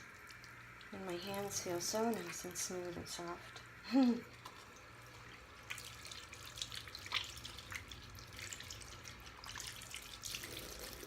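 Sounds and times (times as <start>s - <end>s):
tap water running over hands: 0.0s - 11.0s
wet splashes and crackles: 4.3s - 11.0s.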